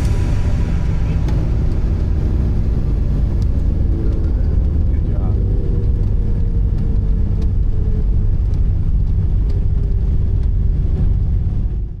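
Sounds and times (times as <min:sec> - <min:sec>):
aircraft engines and propellers rumbling: 0:00.0 - 0:12.0.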